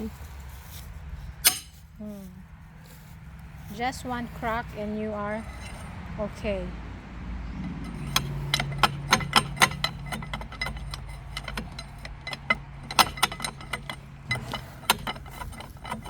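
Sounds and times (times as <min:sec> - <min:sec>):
steady low hum: 0:00.0 - 0:16.0
metal hand tools clinking on bolts: 0:01.4 - 0:01.8, 0:05.4 - 0:06.0, 0:07.6 - 0:16.0.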